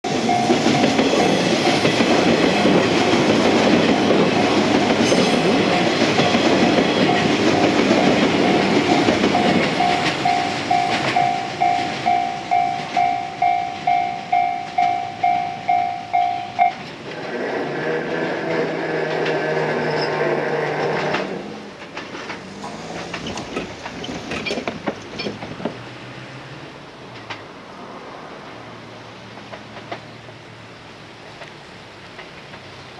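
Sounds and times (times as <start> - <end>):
level-crossing warning bell: 0.0 - 17.0
train running on rails: 0.0 - 32.9
steady pitched tone: 5.3 - 16.8.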